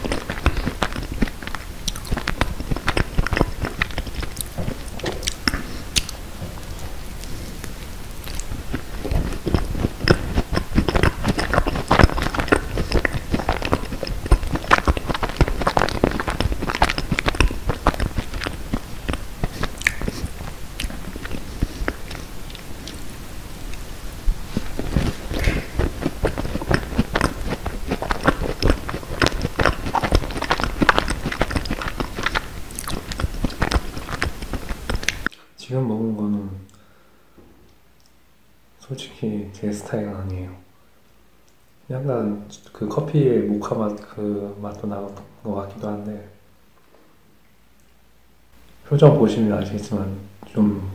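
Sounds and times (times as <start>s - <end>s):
crunching crisp shell: 0.0s - 35.3s
chewing soft filling: 0.0s - 35.5s.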